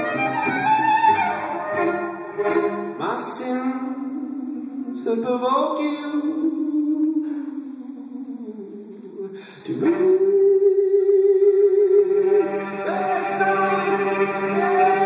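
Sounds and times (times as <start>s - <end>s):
solo violin with vibrato: 0.0s - 3.1s, 12.1s - 15.0s.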